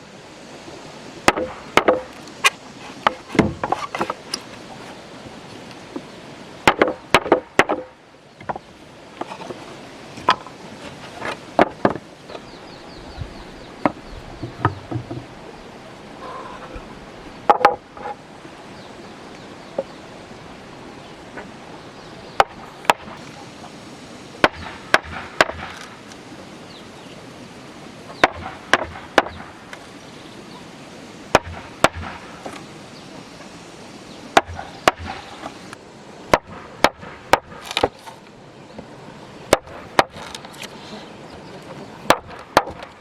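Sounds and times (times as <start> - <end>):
outdoor background hiss: 0.0 - 43.0
tool striking wood: 1.3 - 2.2, 6.7 - 7.9, 24.4 - 25.8, 28.2 - 29.4, 42.1 - 42.9.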